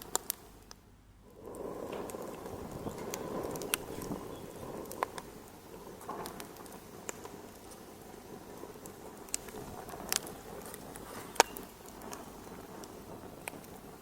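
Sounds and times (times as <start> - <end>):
sharp pops of fire: 0.0 - 14.0
wood fire crackling: 0.0 - 14.0.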